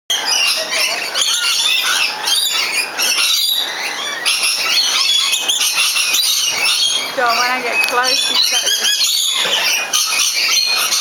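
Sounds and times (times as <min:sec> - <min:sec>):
birds chirping and squawking: 0:00.1 - 0:11.0.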